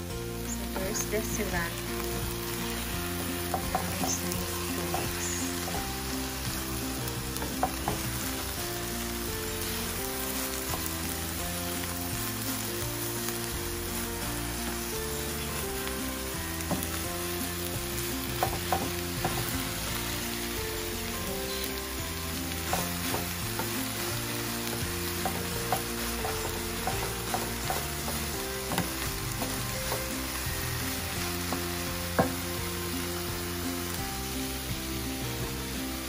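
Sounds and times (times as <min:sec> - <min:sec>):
food sizzling in a skillet: 0:00.0 - 0:36.0
spatula clicking on a pan: 0:24.6 - 0:30.1.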